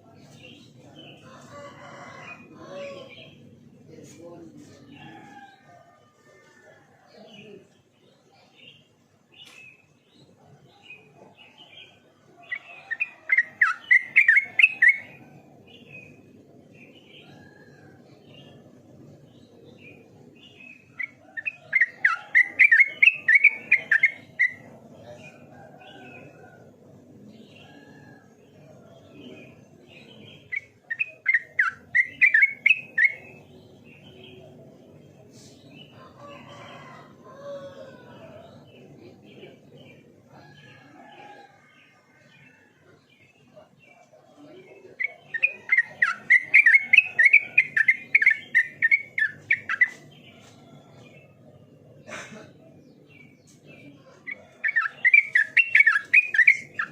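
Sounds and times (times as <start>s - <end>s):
bird singing: 6.5s - 56.9s.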